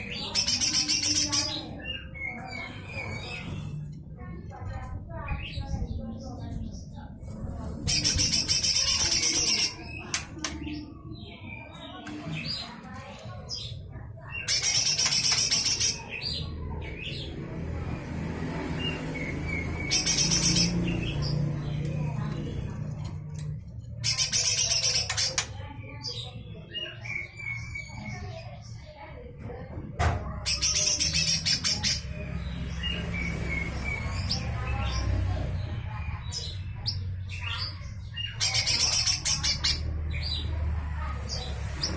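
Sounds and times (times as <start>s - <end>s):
bird giving a rasping buzzy rattle: 7.6s - 10.8s, 14.4s - 16.2s, 19.2s - 25.7s
bird raspy song: 18.4s - 28.9s, 30.4s - 41.9s.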